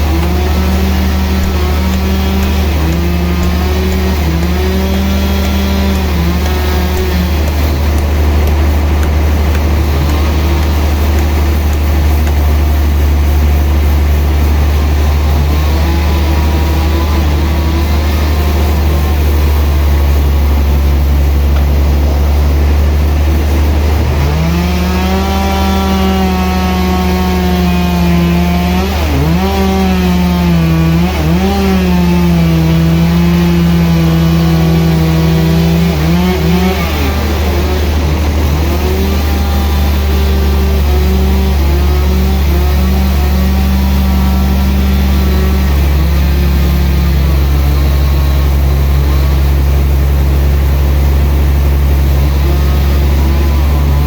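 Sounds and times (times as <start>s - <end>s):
high machine whine: 0.0s - 25.4s, 45.2s - 54.0s
saw engine droning: 0.0s - 54.0s.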